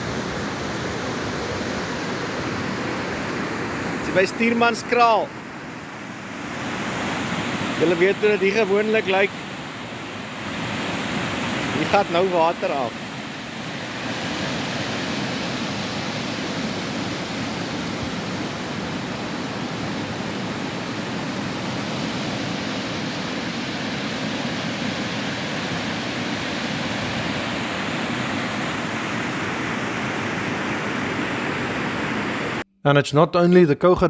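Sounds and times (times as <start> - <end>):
floodwater rushing: 6.6 - 32.6.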